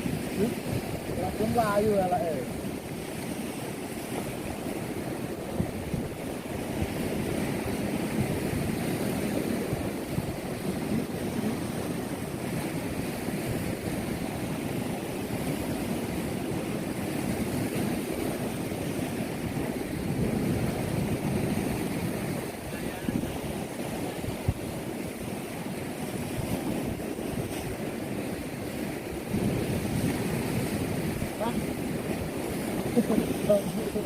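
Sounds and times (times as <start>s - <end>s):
ocean surf rushing: 0.0s - 34.0s
wind buffeting microphone: 0.0s - 34.0s.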